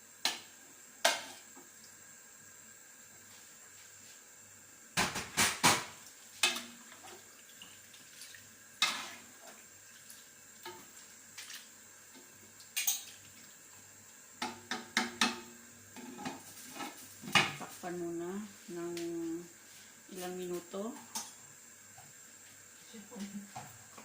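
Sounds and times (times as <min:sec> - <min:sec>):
cookware clattering: 0:12.8 - 0:13.2.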